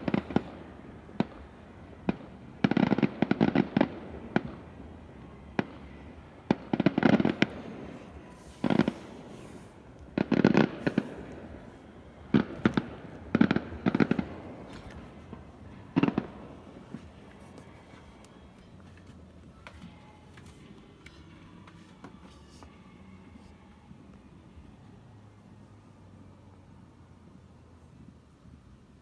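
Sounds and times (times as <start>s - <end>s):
fireworks bangs: 0.0s - 18.0s
fireworks crackling: 0.0s - 22.7s.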